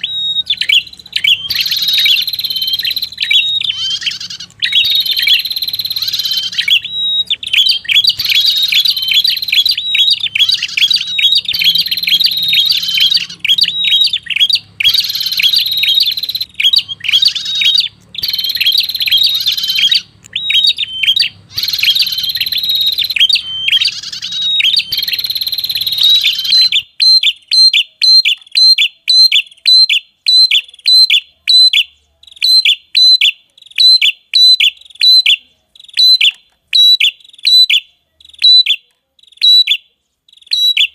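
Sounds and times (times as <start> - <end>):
faint low hum: 0.0 - 26.8
songbird trilled chirping: 0.0 - 40.9.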